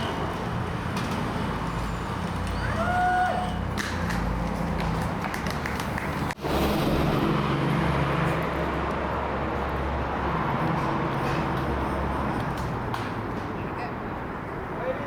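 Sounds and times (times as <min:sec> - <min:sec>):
street noise: 0:00.0 - 0:15.0.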